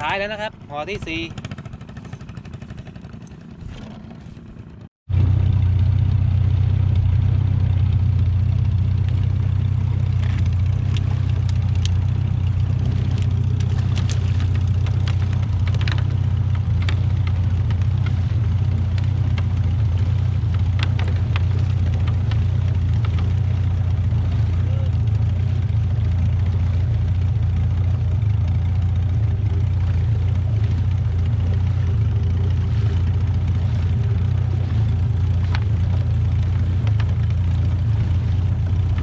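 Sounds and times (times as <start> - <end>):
boat engine humming: 0.0 - 39.0
light clicks and knocks: 13.0 - 23.8.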